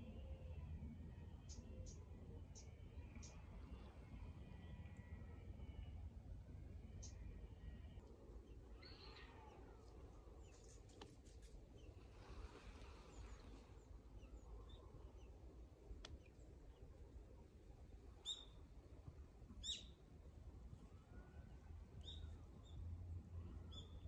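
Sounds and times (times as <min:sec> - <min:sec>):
small birds calling: 0:07.9 - 0:15.4.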